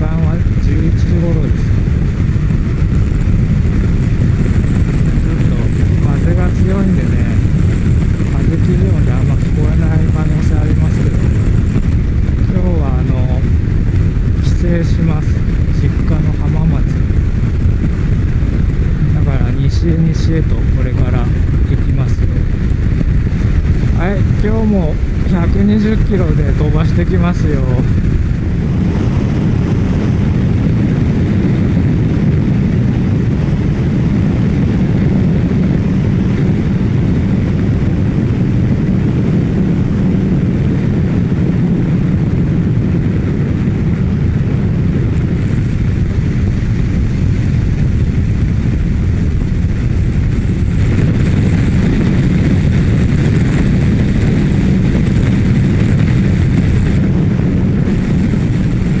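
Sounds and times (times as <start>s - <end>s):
motorcycle engine cruising: 0.0s - 59.0s
wind rushing over microphone: 0.0s - 59.0s.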